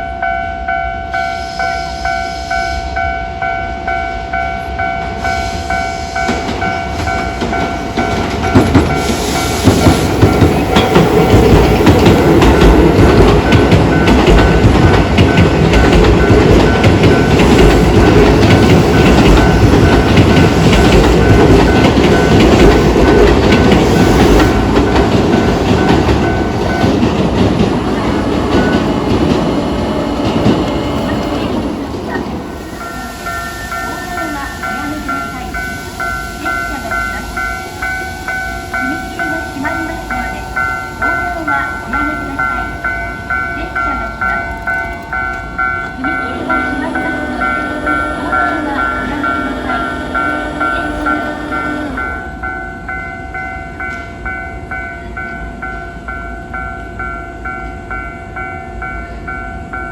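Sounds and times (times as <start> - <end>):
train rumbling past: 0.0 - 59.9
level crossing bell ringing: 32.8 - 59.9.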